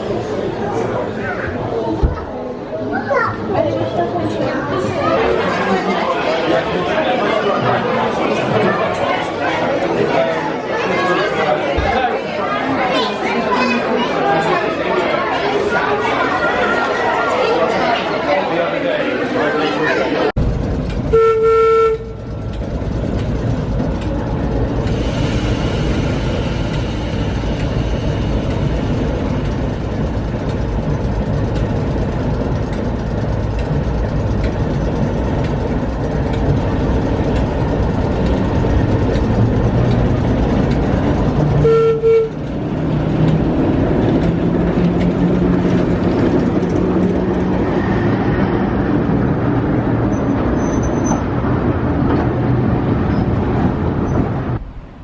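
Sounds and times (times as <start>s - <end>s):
train running: 0.0s - 55.0s
train whistle toot: 21.1s - 22.3s, 41.6s - 42.4s.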